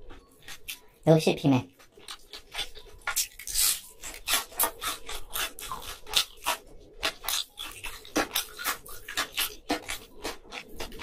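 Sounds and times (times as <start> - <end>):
crunchy chewing of fried shrimp: 0.0 - 1.1, 1.7 - 11.0.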